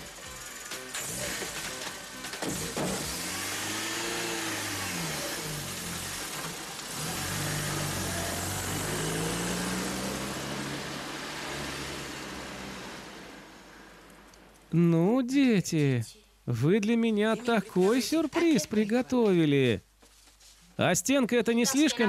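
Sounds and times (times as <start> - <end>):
car engine revving: 0.0 - 14.3.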